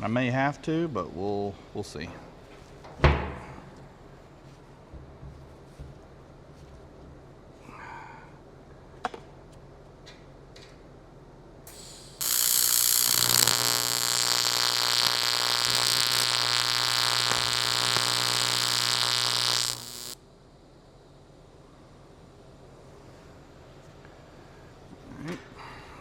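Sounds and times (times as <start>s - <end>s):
electric welding arc buzzing: 11.7s - 20.2s.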